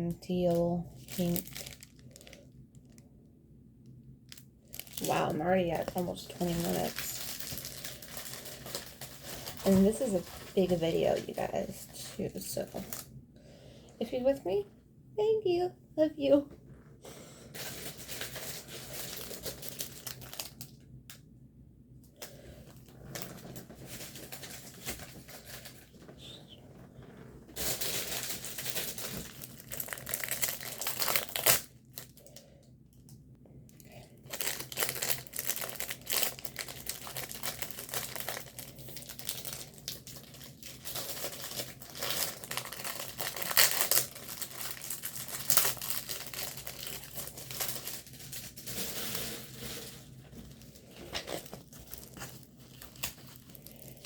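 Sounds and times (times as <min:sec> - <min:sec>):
plastic packaging crinkling: 0:00.3 - 0:03.0, 0:04.2 - 0:13.1, 0:17.6 - 0:20.8, 0:22.3 - 0:32.4, 0:33.8 - 0:54.0.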